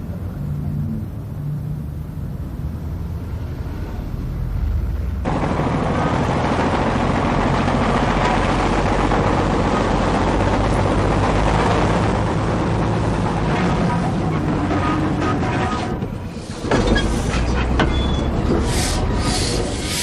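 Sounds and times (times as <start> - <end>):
low engine rumble: 0.0 - 20.0
clattering rattling noise: 5.3 - 18.7.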